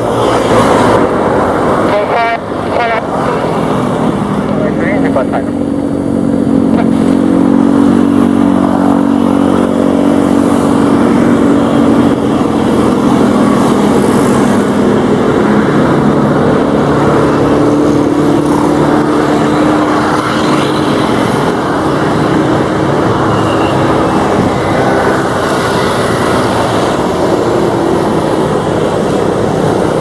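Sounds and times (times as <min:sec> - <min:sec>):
propeller aircraft engines droning: 0:00.0 - 0:30.0.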